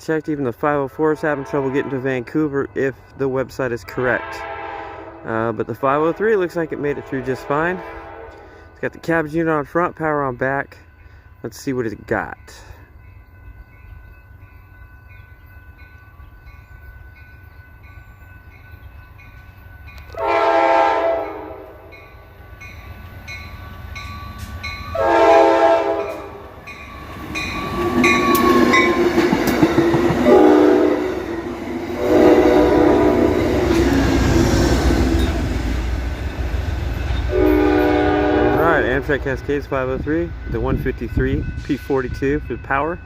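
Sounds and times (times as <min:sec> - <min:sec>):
train rumble: 0:00.0 - 0:43.0
train horn blasts: 0:01.2 - 0:02.2, 0:03.9 - 0:05.3, 0:06.0 - 0:08.7, 0:20.1 - 0:22.1, 0:24.9 - 0:26.6, 0:30.1 - 0:35.5, 0:37.2 - 0:39.1.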